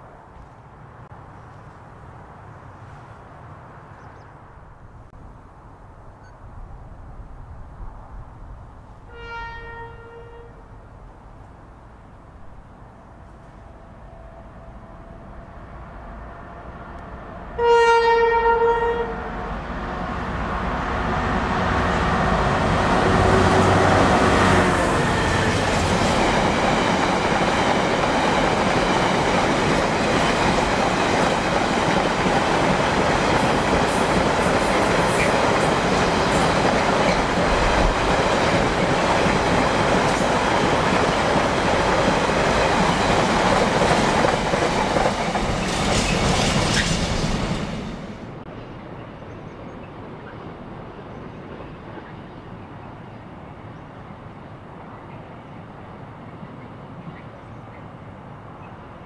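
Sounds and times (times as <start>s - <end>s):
locomotive horn blast: 9.1s - 10.6s, 17.5s - 19.5s
diesel locomotive engine: 12.4s - 59.0s.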